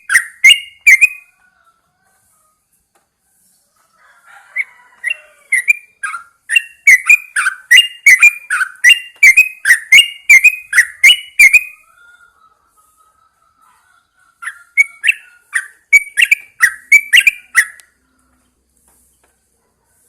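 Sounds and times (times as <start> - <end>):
bird singing whistled notes: 0.0 - 1.3, 5.0 - 11.8, 14.4 - 18.0.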